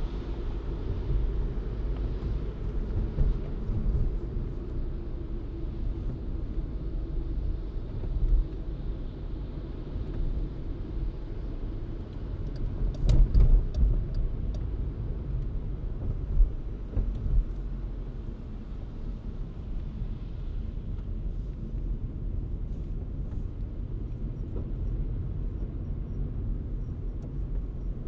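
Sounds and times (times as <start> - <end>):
road and tyre noise: 0.0 - 28.0.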